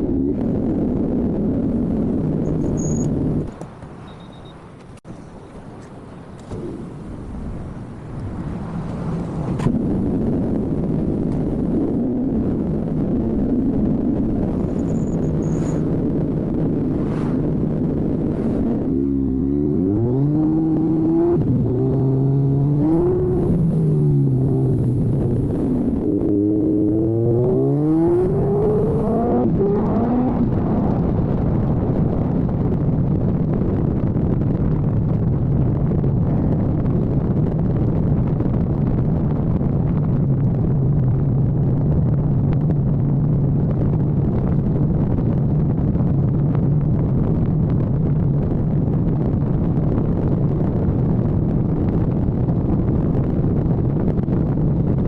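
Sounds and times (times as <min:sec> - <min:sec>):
motorcycle engine accelerating: 0:09.4 - 0:32.2.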